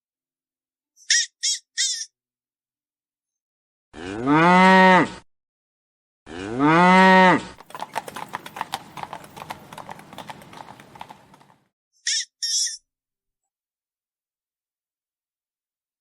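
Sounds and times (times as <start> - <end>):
cow lowing: 6.8 - 11.6.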